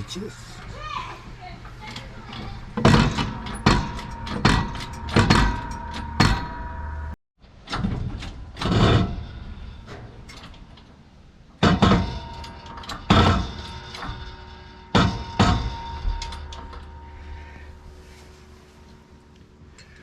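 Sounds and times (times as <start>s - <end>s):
hammer striking metal hub: 2.8s - 6.8s, 11.6s - 17.0s.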